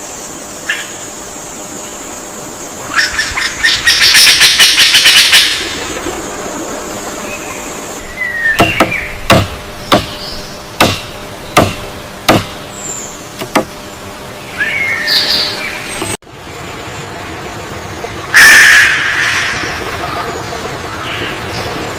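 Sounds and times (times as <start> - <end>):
steady hiss: 0.0 - 14.7
sharp knocks: 8.6 - 10.2, 10.8 - 12.6, 13.4 - 13.8.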